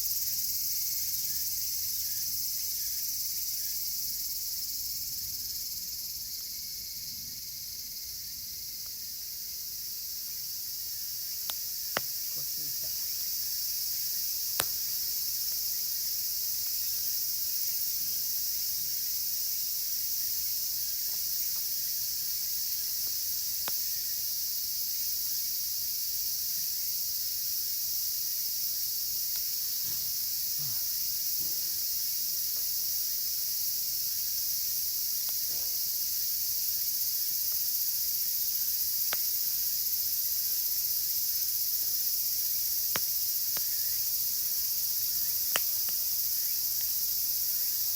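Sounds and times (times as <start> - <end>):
cicadas chorus: 0.0 - 47.9
campfire wood popping: 10.2 - 19.0, 20.6 - 24.2, 29.2 - 30.3, 35.2 - 36.0, 38.9 - 39.5, 41.8 - 47.9.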